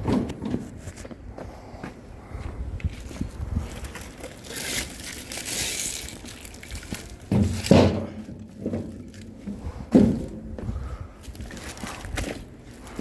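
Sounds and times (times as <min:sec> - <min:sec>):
crinkling rustling handling noise: 0:02.8 - 0:09.6, 0:11.2 - 0:13.0
heavy thuds: 0:07.3 - 0:11.0.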